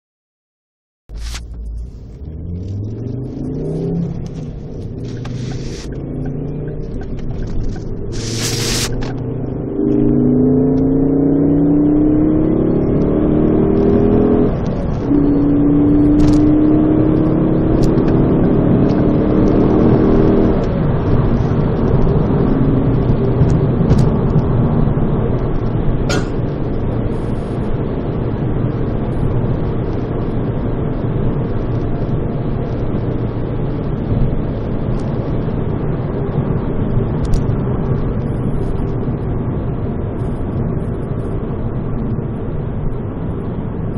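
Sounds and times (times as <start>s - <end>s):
car exhaust note rising: 1.1s - 27.3s
road and engine rumble: 1.1s - 43.9s.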